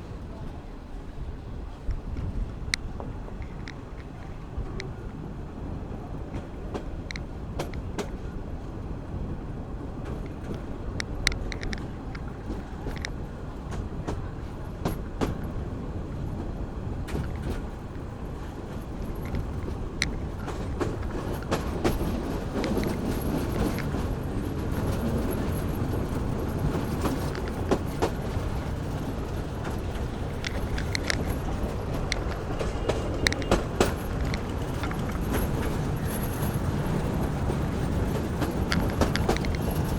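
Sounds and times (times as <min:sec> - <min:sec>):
train rumbling on track: 0:00.0 - 0:39.9
sharp clicks and knocks: 0:19.0 - 0:36.6, 0:37.2 - 0:39.9.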